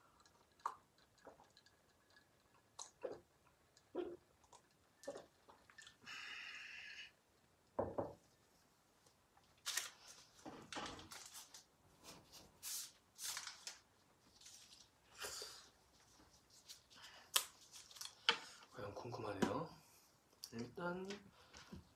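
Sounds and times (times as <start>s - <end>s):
mouth clicks and smacks: 0.2s - 6.0s.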